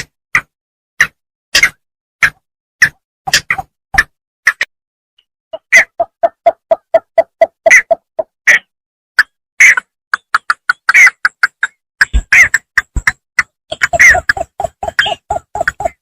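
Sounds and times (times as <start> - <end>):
bittern calling in clipped notes: 5.6 - 16.0.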